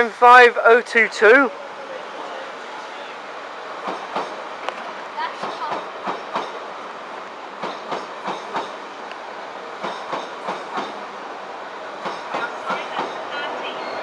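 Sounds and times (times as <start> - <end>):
train wheels rolling: 1.8 - 14.0.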